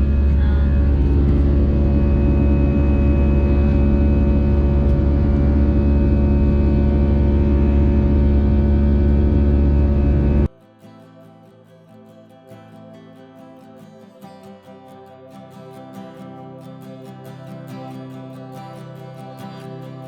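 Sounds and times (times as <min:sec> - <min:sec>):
airplane cabin drone: 0:00.0 - 0:10.5.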